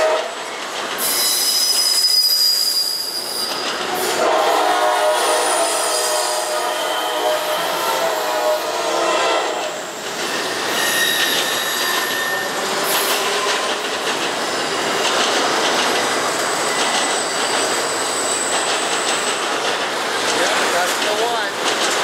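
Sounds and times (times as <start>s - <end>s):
train horn: 0.0s - 0.4s, 4.0s - 9.8s
train wheels clattering on rails: 0.0s - 6.6s, 9.4s - 22.0s
wheel squeals: 0.4s - 4.0s, 10.1s - 19.5s.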